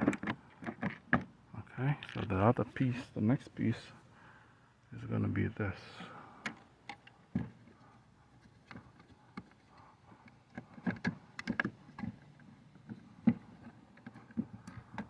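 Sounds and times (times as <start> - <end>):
mounting hardware clicks and knocks: 0.0 - 1.4, 6.4 - 7.7, 8.4 - 15.0.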